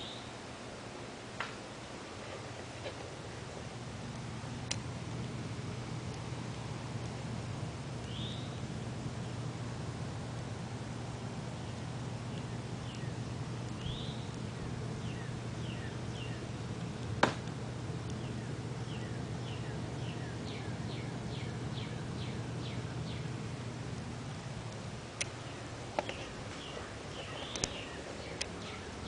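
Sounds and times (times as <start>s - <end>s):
nestling birds cheeping: 0.0s - 0.4s, 7.8s - 9.8s, 11.0s - 24.4s, 25.2s - 29.0s
steady low hum: 0.0s - 29.0s.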